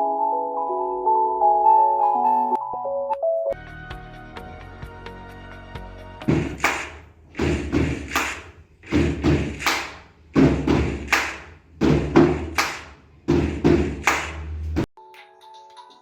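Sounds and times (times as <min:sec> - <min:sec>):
heavy drum strikes: 0:06.3 - 0:14.9.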